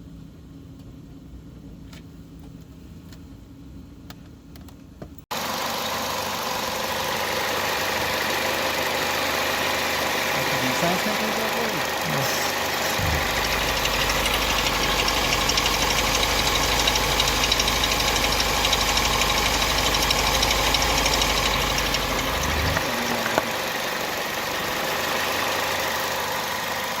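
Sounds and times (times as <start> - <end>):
car engine droning: 5.3 - 27.0.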